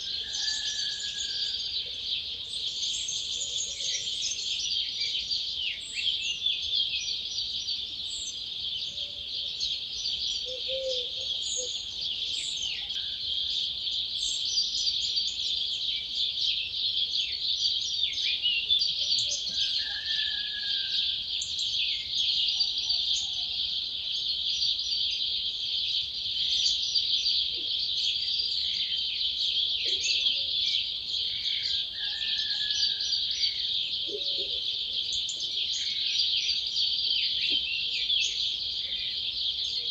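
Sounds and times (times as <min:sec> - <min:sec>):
birds singing: 0:00.0 - 0:39.9
bird whistles and trills: 0:10.4 - 0:11.8.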